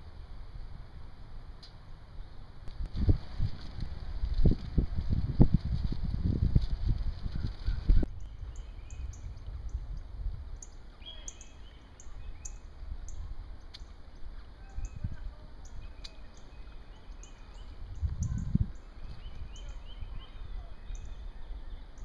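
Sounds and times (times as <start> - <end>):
low outdoor rumble: 0.0 - 22.0
wind buffeting microphone: 2.7 - 10.6, 14.2 - 22.0
birds chirping: 7.8 - 22.0.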